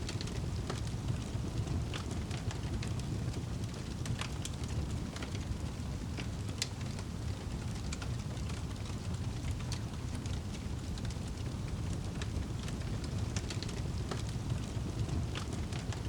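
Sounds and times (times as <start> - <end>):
fire pops and snaps: 0.0 - 16.0
low rumble of flames: 0.0 - 16.0.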